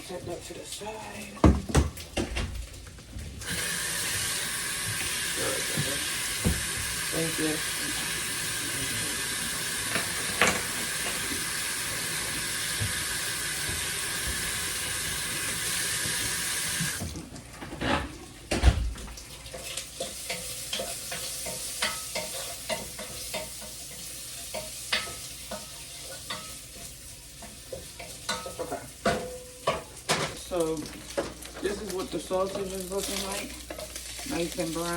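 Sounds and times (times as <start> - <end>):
kitchen tap running: 0.0 - 17.4, 18.4 - 34.9
sausage sizzling in a frying pan: 0.0 - 17.4, 18.2 - 34.9
utensils tapping a pan: 19.5 - 34.9.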